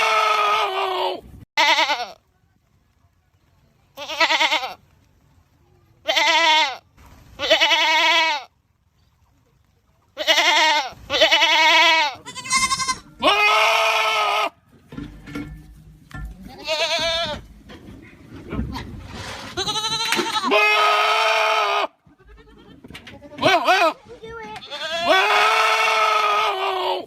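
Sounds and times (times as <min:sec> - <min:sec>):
goats bleating loudly: 0:00.0 - 0:02.2, 0:04.0 - 0:04.8, 0:06.0 - 0:06.8, 0:07.4 - 0:08.5, 0:10.2 - 0:14.6, 0:16.5 - 0:17.5, 0:19.4 - 0:27.0.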